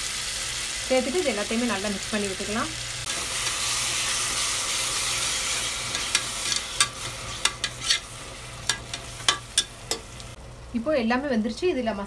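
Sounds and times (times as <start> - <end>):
masala sizzling in a pot: 0.0 - 12.0
metal spoon scraping pot: 5.7 - 10.1.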